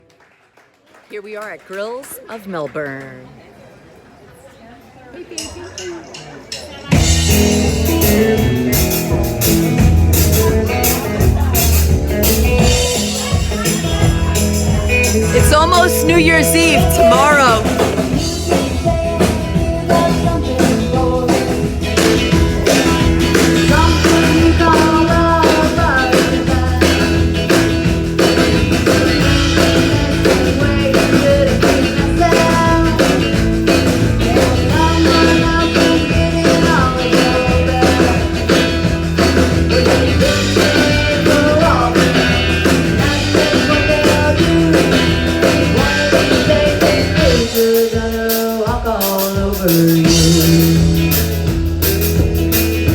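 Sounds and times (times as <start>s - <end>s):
live rock band playing: 5.4s - 52.9s
person singing: 15.3s - 27.6s, 29.2s - 33.4s, 34.2s - 38.7s, 39.3s - 51.2s.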